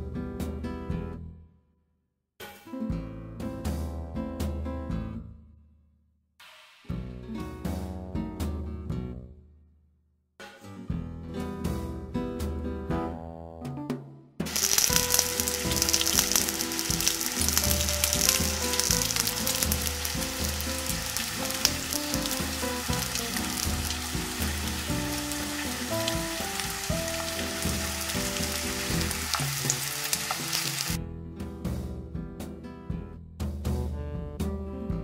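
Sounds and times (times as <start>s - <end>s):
background music: 2.4s - 5.4s, 6.8s - 9.4s, 10.4s - 35.0s
dumplings sizzling in skillet: 14.5s - 31.0s.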